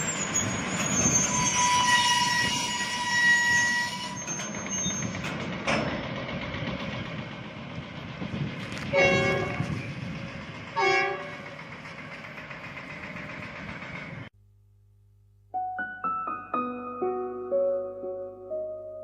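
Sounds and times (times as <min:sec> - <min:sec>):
rumbling vehicle noise: 0:00.0 - 0:14.3
horn honks: 0:08.9 - 0:09.7, 0:10.8 - 0:11.4
solo piano music: 0:15.5 - 0:19.0.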